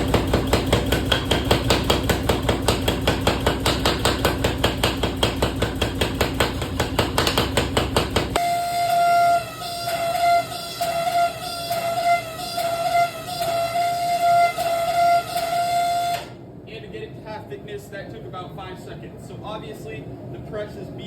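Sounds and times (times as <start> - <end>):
power hammer pounding metal: 0.0 - 16.3.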